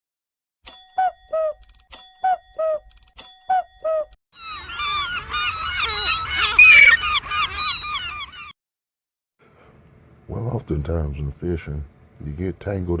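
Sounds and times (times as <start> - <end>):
ringing chime: 0.7 - 4.0
short falling calls: 3.6 - 8.5
chorus of birds honking: 4.4 - 8.5.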